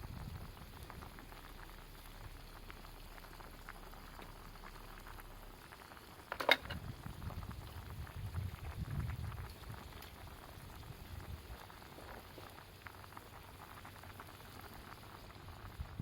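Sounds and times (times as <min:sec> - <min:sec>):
campfire crackling and bubbling: 0:00.0 - 0:16.0.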